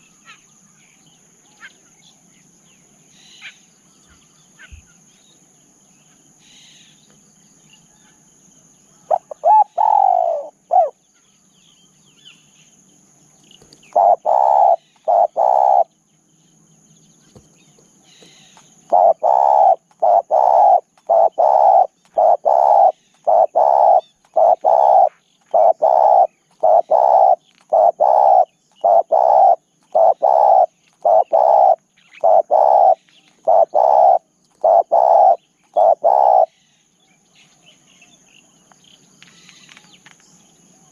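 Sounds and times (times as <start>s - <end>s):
dove cooing: 9.1s - 11.0s, 13.9s - 15.9s, 18.2s - 36.5s.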